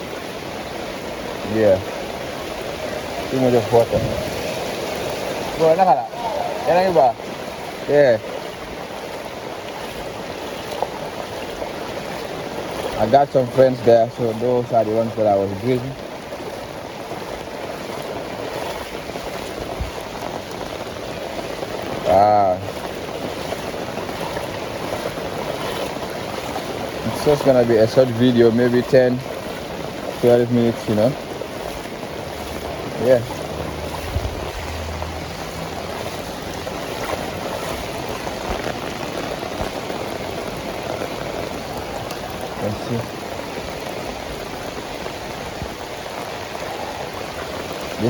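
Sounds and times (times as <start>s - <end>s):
heavy rain falling: 0.0s - 48.0s
running floodwater: 0.0s - 48.0s
low thump: 3.8s - 5.0s.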